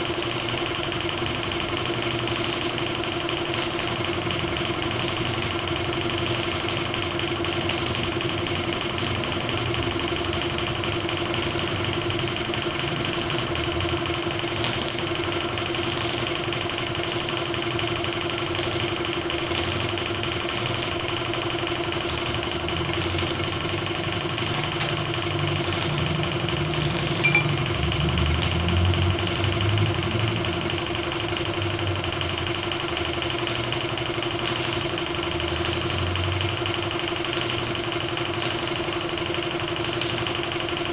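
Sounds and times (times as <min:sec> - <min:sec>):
sharp metallic click: 0:27.2 - 0:27.7.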